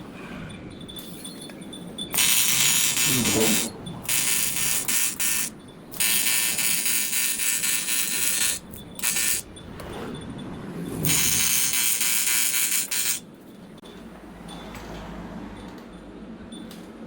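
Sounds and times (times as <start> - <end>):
welding arc buzzing: 2.1 - 9.5, 11.0 - 13.3.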